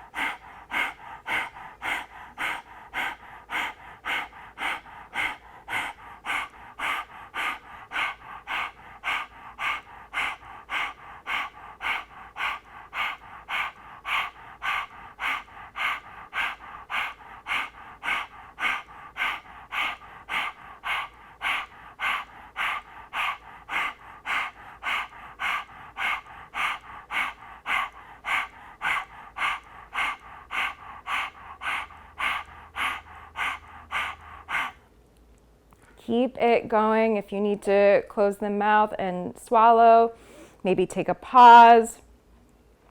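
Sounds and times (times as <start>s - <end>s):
woman panting rhythmically: 0.0s - 35.0s, 36.0s - 41.9s.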